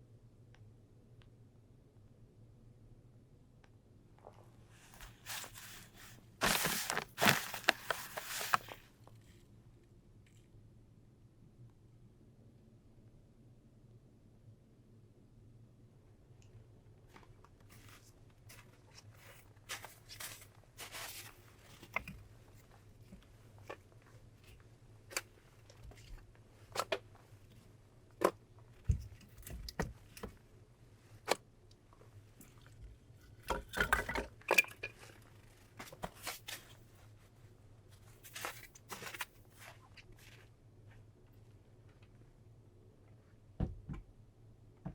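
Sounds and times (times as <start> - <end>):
crunching tearing and rustling: 6.4 - 8.8.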